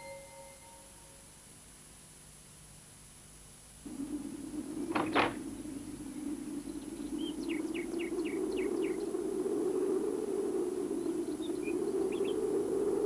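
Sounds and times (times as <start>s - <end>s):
birds chirping: 3.8s - 13.0s
low whoosh of wind: 3.8s - 13.0s.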